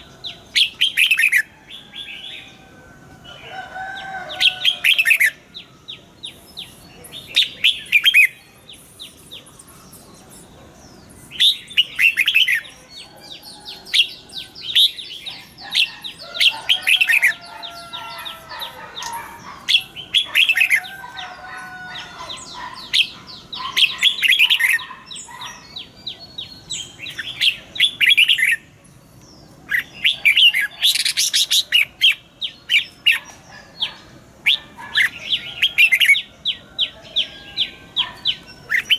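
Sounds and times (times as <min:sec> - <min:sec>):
birds chirping: 0:00.0 - 0:38.9
warbled bird song: 0:00.0 - 0:38.9.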